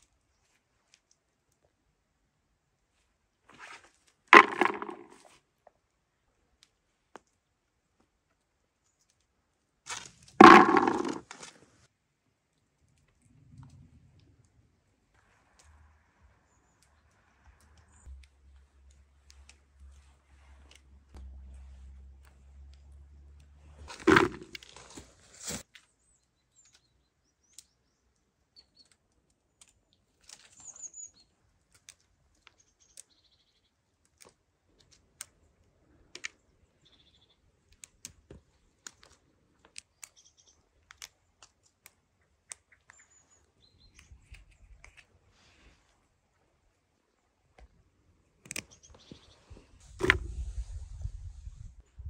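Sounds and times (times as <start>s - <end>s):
bird chirps: 42.7s - 44.7s.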